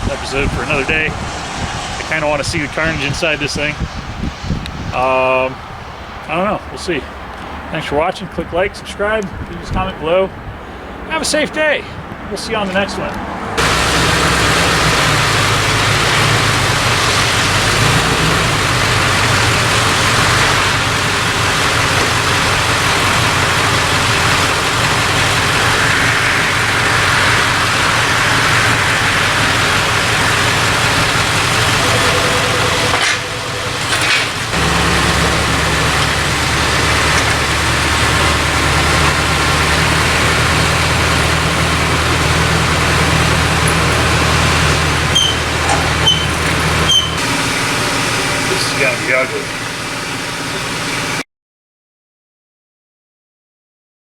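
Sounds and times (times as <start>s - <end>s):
engine running steadily: 13.6s - 51.2s.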